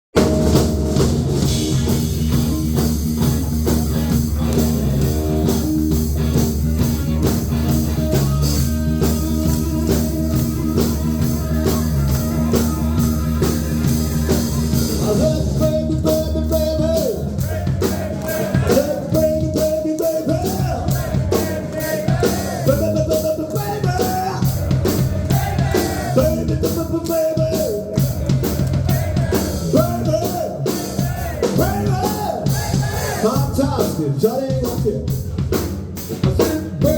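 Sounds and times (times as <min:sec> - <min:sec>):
rock band playing live: 0:00.1 - 0:36.9
person singing: 0:08.5 - 0:24.6, 0:25.3 - 0:28.2, 0:28.9 - 0:35.1, 0:36.2 - 0:36.9.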